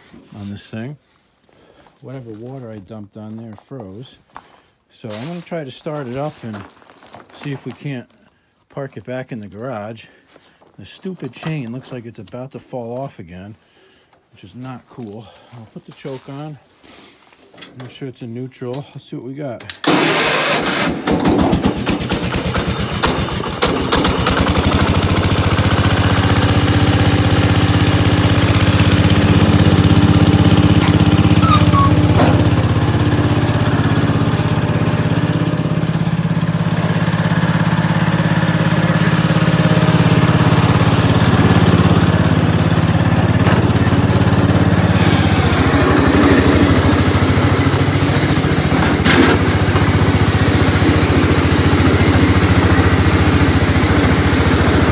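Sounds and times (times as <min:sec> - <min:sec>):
small engine starting and running: 0:19.6 - 0:54.9.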